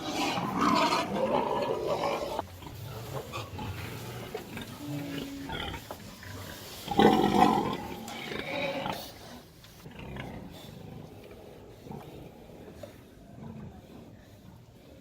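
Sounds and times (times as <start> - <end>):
pigs squealing: 0.0 - 2.5.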